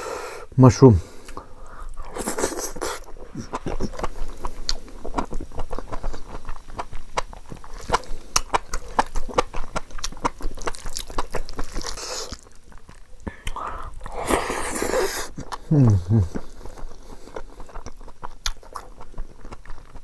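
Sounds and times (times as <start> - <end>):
wet chewing and mouth smacks: 1.2 - 20.0
breath hiss or slurp: 13.6 - 15.4.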